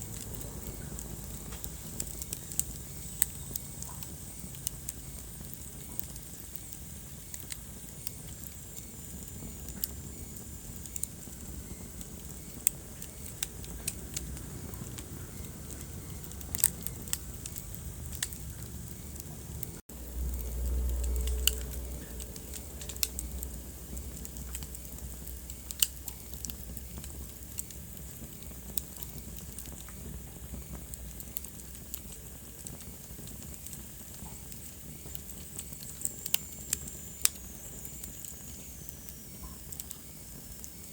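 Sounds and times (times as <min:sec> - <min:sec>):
sharp pops and snaps: 0:00.0 - 0:40.9
wood fire crackling: 0:00.0 - 0:40.9
low rumble: 0:13.5 - 0:27.6.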